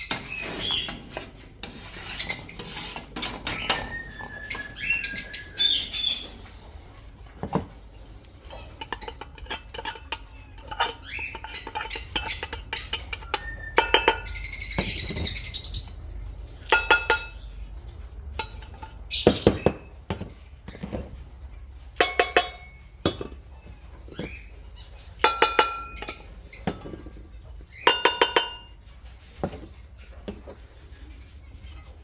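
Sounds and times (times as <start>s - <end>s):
bird chirping: 0.0s - 1.1s, 3.4s - 7.0s, 7.6s - 29.0s
dishes clinking: 7.2s - 30.6s.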